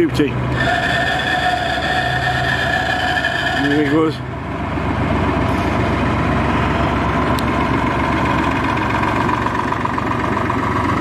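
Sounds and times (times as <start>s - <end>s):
boat diesel engine thrumming: 0.0s - 11.0s.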